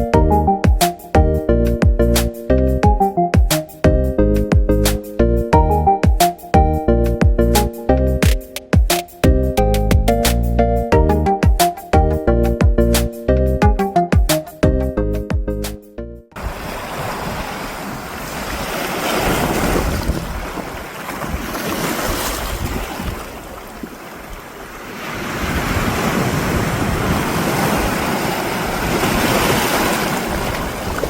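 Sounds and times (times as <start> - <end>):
wind buffeting microphone: 16.4 - 24.4, 25.1 - 31.0
sea waves surging onto shore: 16.4 - 31.0.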